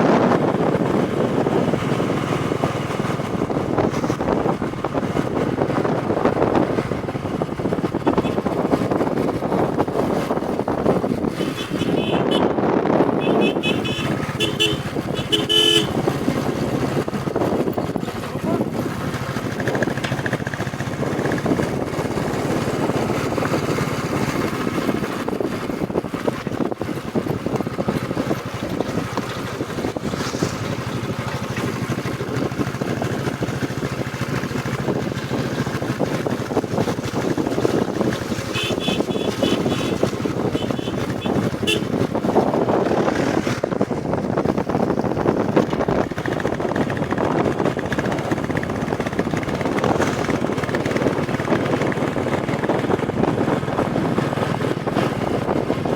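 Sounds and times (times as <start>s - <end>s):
motorcycle engine running: 0.0s - 55.9s
wind rush on microphone: 0.0s - 55.9s
horn short toots: 11.4s - 16.0s, 38.5s - 42.1s.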